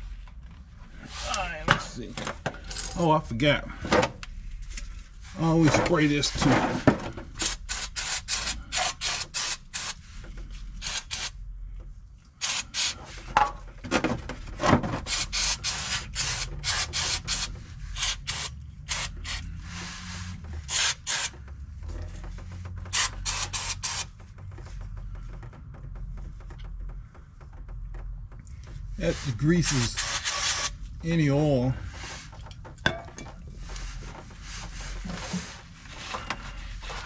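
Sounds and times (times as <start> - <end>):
aerosol spray hissing: 12.4 - 13.0, 15.1 - 19.4, 23.0 - 24.0.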